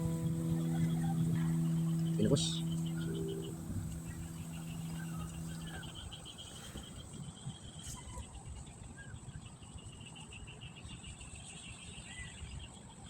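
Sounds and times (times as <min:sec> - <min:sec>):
low background rumble: 0:00.0 - 0:06.4
bird chirps: 0:00.0 - 0:07.0
insects chirring: 0:00.0 - 0:07.1.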